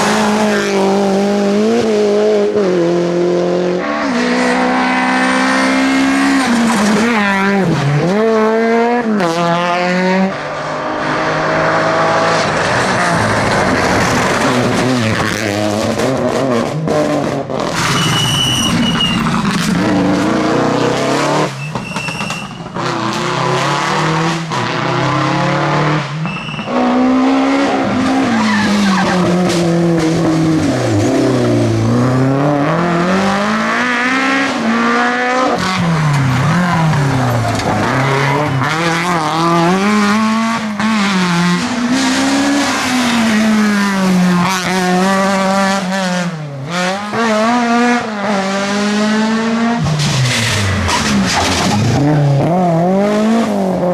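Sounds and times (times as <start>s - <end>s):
rally car engine revving: 0.0s - 53.9s
tyres squealing and skidding: 17.6s - 24.2s, 26.1s - 33.8s, 35.6s - 40.7s, 49.8s - 53.9s.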